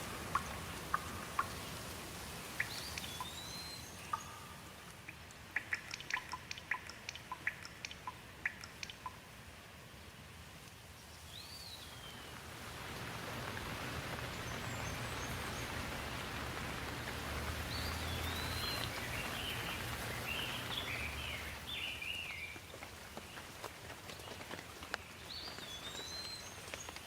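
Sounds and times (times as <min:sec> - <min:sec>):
bird chirping: 0:00.0 - 0:01.8, 0:02.5 - 0:04.9, 0:05.6 - 0:09.2, 0:11.0 - 0:12.4, 0:14.0 - 0:16.8, 0:17.4 - 0:23.4, 0:25.0 - 0:27.0
rain falling: 0:00.0 - 0:27.0.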